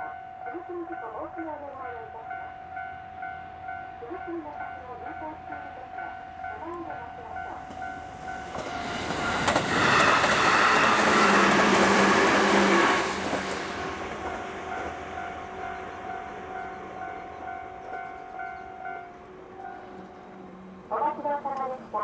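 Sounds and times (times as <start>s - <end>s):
crossing warning bell: 0.0s - 21.9s
train passing: 0.0s - 22.0s.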